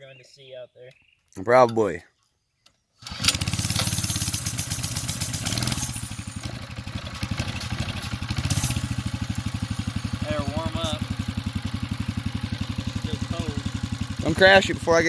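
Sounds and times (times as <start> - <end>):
small engine running: 3.0 - 15.0.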